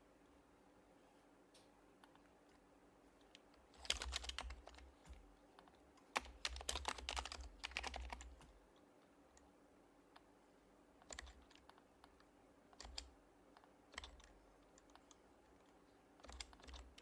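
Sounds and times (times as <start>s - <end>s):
typing on a keyboard: 3.8s - 8.4s, 11.0s - 17.0s.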